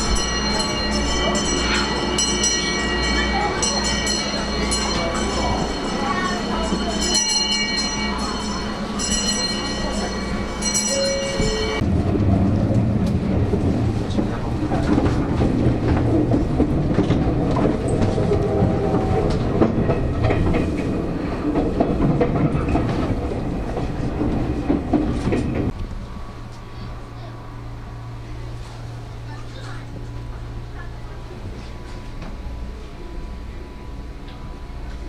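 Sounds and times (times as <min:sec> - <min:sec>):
high ringing tone: 0:00.0 - 0:11.8
train coach rumble with wheel clatter: 0:00.0 - 0:35.0.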